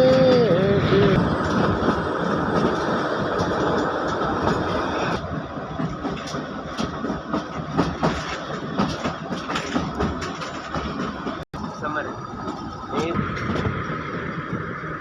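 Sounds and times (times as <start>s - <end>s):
train wheels clattering over rails: 0.0s - 15.0s
knocks and clicks: 5.8s - 11.8s.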